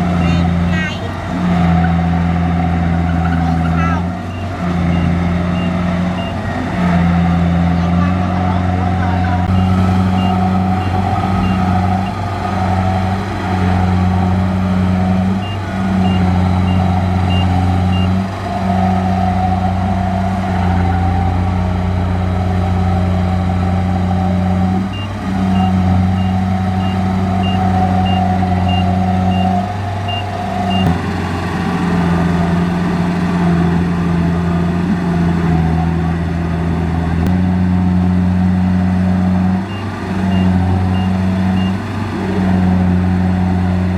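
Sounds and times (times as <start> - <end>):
diesel engine under load: 0.0 - 43.9
reversing beeper beeps: 4.3 - 6.4, 9.5 - 12.2, 15.4 - 18.2, 24.9 - 31.0, 39.7 - 41.8.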